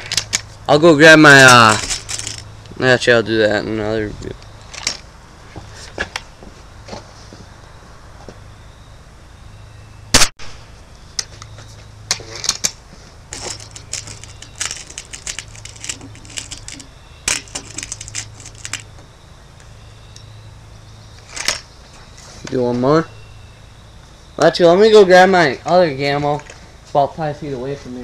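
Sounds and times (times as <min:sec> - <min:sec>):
metallic clicks and rattles: 0:01.4 - 0:02.5, 0:04.6 - 0:05.0, 0:13.3 - 0:18.8
air rifle shot crack: 0:10.1 - 0:10.6.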